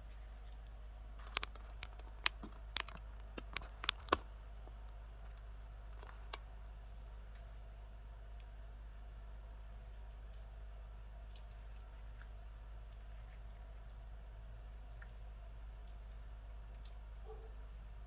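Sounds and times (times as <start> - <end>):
low electrical hum: 0.0 - 18.0
plastic connector clicks: 1.3 - 4.2.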